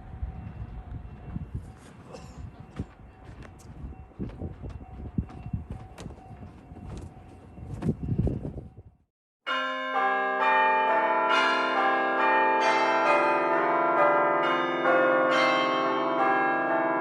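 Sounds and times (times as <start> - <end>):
bell-like chiming music: 9.5 - 17.0.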